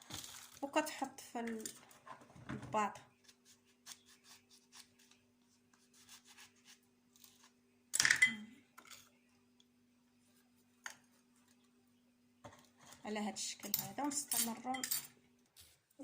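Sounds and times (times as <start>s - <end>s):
rubbing and scraping of lemons: 3.1s - 7.6s.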